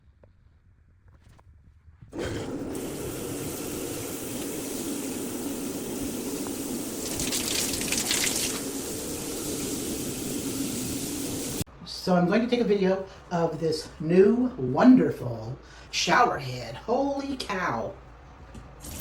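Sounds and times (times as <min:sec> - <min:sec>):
shower spraying water: 0:02.2 - 0:11.7.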